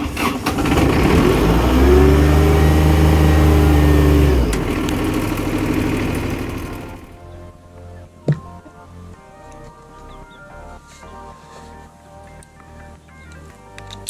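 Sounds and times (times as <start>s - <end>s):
air compressor engine: 0.0s - 7.2s.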